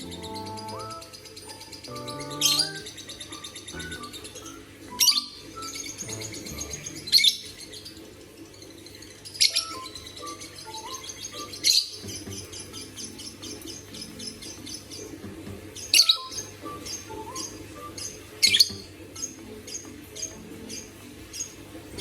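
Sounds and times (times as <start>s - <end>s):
faint melody: 0.0s - 8.5s, 9.4s - 22.0s
bird chirping: 0.0s - 22.0s.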